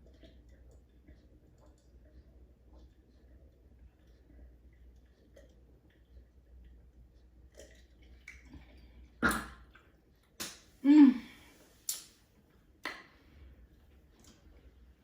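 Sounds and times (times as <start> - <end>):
person humming or grunting: 10.8 - 11.4.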